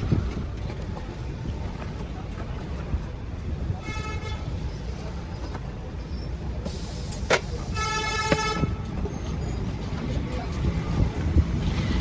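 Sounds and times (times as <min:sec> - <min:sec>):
traffic rumble: 0:00.0 - 0:12.0
vehicle horn toots: 0:01.2 - 0:08.9.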